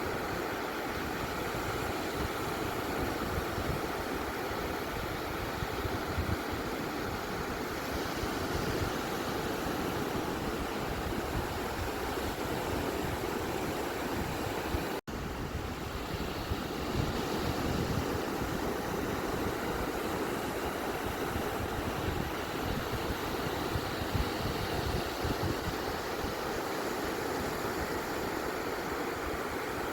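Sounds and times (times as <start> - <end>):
surf roaring: 0.0 - 29.9.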